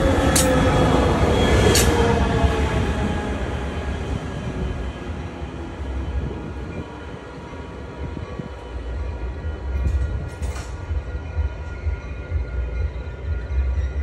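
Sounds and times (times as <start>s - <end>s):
hum of steady tones: 0.0s - 14.0s
train low rumble: 0.0s - 14.0s.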